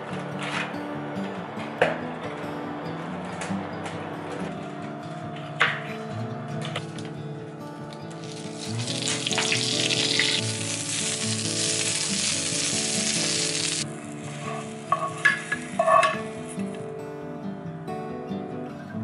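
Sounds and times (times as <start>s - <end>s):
soft background music: 0.0s - 19.0s
vegetables sizzling in frying pan: 8.1s - 16.7s.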